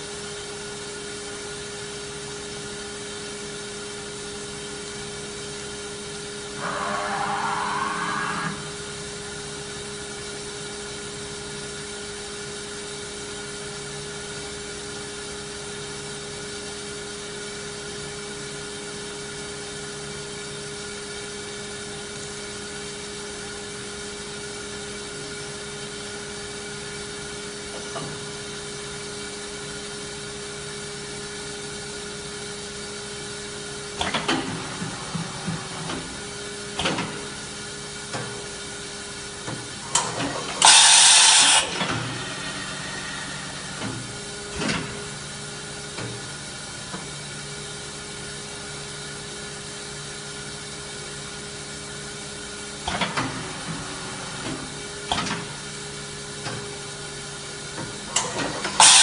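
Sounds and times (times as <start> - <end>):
machine humming with steady tones: 0.0 - 16.0, 21.8 - 59.0
air hiss burst: 40.6 - 45.2.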